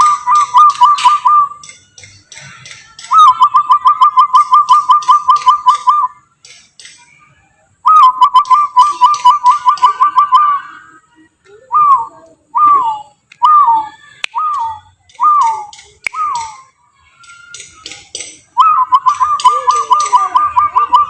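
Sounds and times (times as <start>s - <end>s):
man whistling bird calls: 0.0s - 1.7s, 3.1s - 6.2s, 7.8s - 10.7s, 11.7s - 16.6s, 18.6s - 21.0s.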